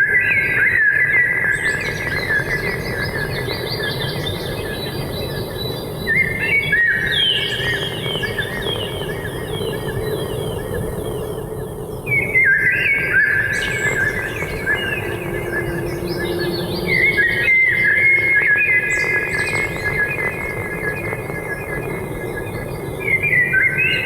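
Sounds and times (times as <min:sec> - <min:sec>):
birds chirping in trills: 0:12.2 - 0:19.5.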